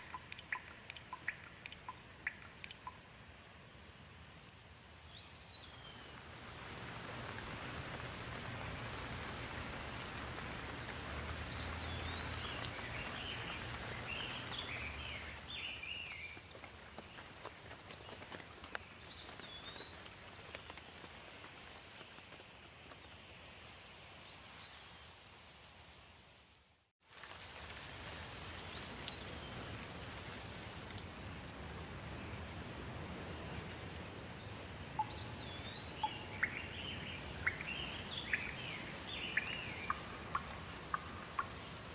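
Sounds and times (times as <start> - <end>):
birds chirping: 0.0 - 3.1, 7.5 - 17.4, 31.7 - 41.9
steady rain falling: 0.0 - 41.9.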